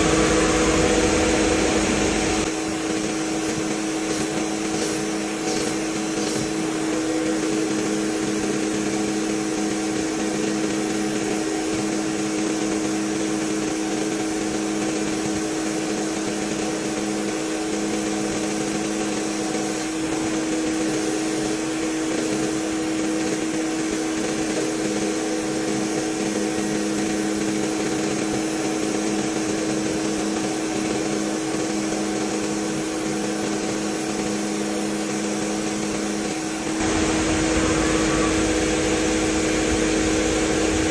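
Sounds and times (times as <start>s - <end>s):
workshop machinery humming: 0.0s - 10.7s, 35.0s - 40.9s.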